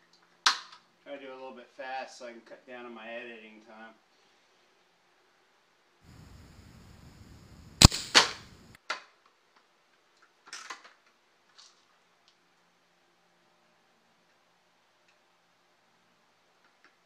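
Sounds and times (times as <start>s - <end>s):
air rifle firing: 6.1s - 8.8s.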